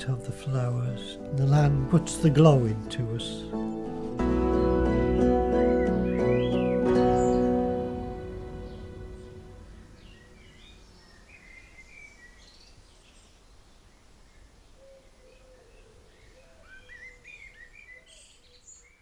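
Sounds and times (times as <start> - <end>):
faint birdsong: 0.0 - 19.0
low background hiss: 6.9 - 19.0.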